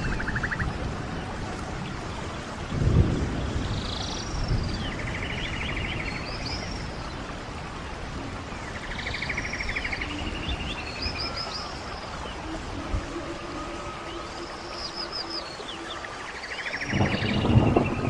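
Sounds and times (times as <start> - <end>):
stream water flowing: 0.0 - 18.0
songbird singing with buzzy trill: 8.7 - 18.0.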